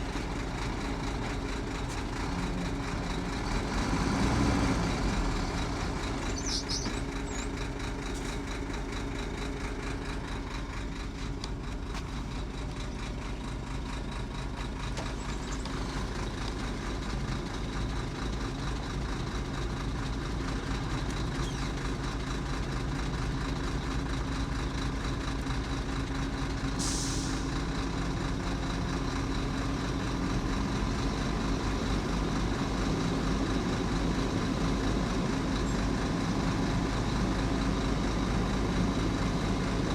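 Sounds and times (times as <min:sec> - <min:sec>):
diesel engine running: 0:00.0 - 0:39.9
air brake hiss: 0:26.8 - 0:27.6.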